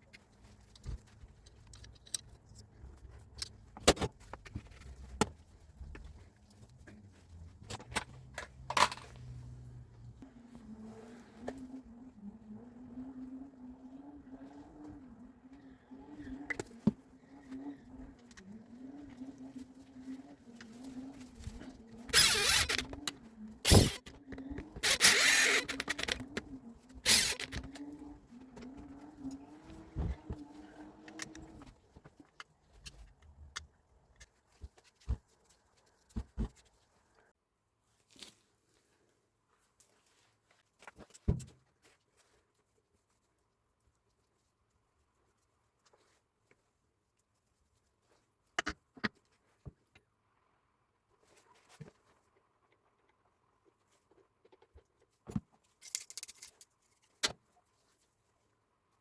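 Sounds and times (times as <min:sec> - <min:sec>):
metal tool parts clinking: 0:55.8 - 0:57.1.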